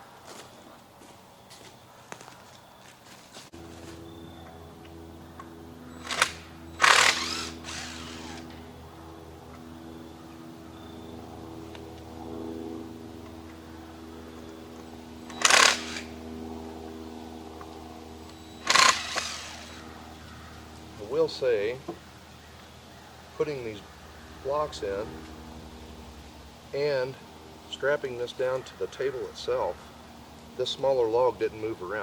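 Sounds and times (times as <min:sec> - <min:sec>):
chainsaw idling: 0:06.0 - 0:08.6, 0:15.2 - 0:16.2, 0:18.3 - 0:19.8
chainsaw revving bursts: 0:06.0 - 0:08.6, 0:15.2 - 0:16.2, 0:18.4 - 0:19.9.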